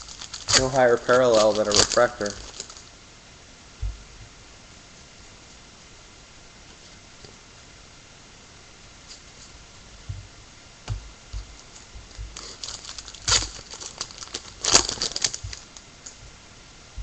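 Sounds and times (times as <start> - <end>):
foil wrapper crinkling and tearing: 0.0 - 2.9, 12.3 - 15.8.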